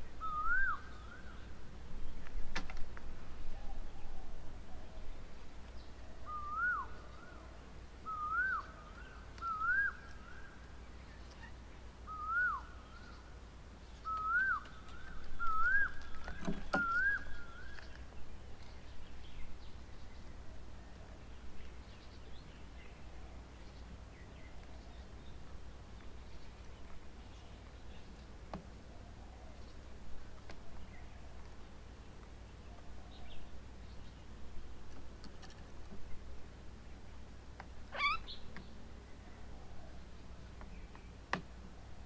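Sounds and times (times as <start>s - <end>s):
bird whistling: 0.2s - 1.3s, 6.2s - 7.0s, 8.0s - 10.5s, 12.1s - 13.2s, 14.0s - 16.0s, 16.7s - 17.9s, 37.9s - 38.4s.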